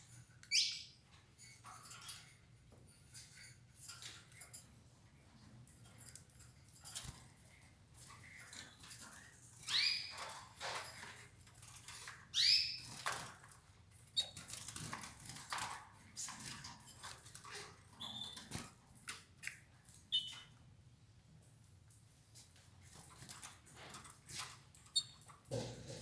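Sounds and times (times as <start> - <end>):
clicks and rustling of birds feeding: 0.0 - 20.6, 21.7 - 26.0
canaries chirping: 0.0 - 20.7, 22.4 - 25.8
high bird peeps: 0.4 - 1.0, 9.7 - 10.2, 12.3 - 12.8, 20.1 - 20.5.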